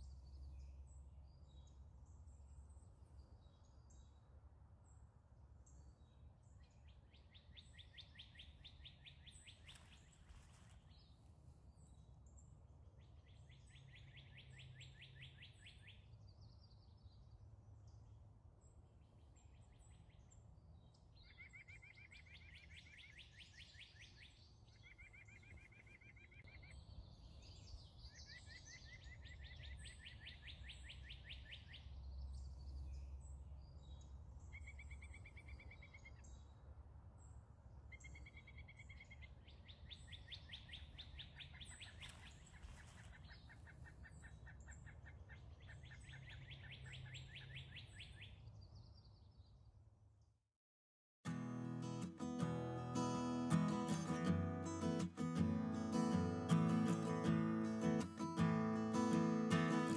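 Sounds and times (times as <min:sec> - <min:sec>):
songbirds trilling: 0:37.3 - 0:49.4.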